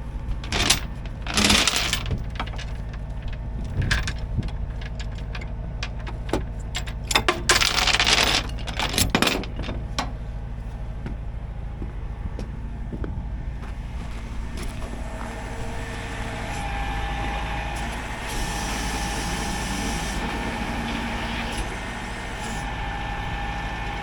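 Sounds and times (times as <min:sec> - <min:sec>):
metallic rattles and clanks: 0:00.0 - 0:15.9
truck engine running: 0:00.0 - 0:24.0.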